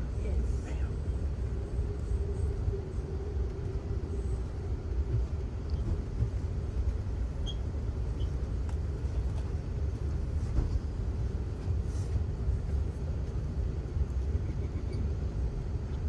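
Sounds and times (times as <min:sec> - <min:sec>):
low rumble of moving train: 0:00.0 - 0:16.0.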